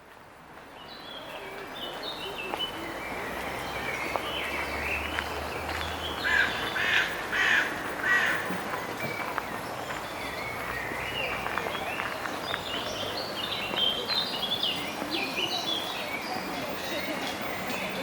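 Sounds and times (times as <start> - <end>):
small birds chirping: 0.8 - 18.0
crow cawing: 6.2 - 8.4.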